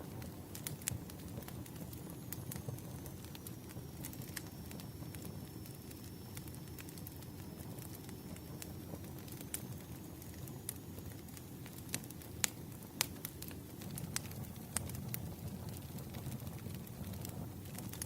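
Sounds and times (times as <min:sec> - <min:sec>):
firewood crackling and popping: 0:00.0 - 0:18.0
low roar of flames: 0:00.0 - 0:18.0.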